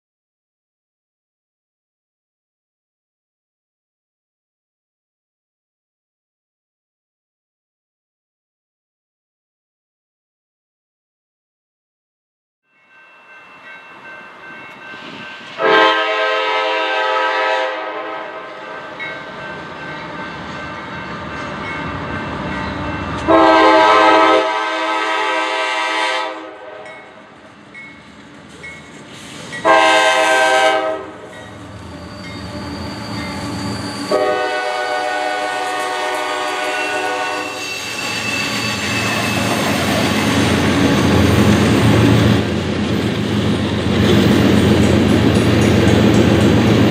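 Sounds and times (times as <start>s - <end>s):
locomotive air horn blasts: 15.6s - 19.0s, 22.9s - 26.9s, 29.6s - 31.3s, 34.0s - 38.0s
train rumble and clatter: 18.2s - 23.9s, 26.9s - 46.9s.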